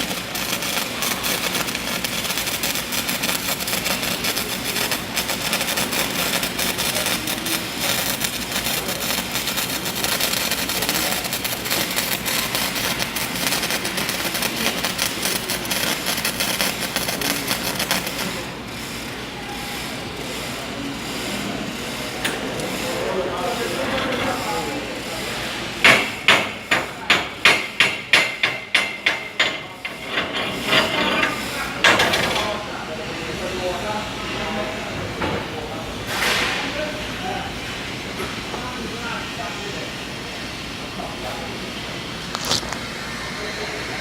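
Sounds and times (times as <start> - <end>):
welding arc crackling: 0.0 - 34.8.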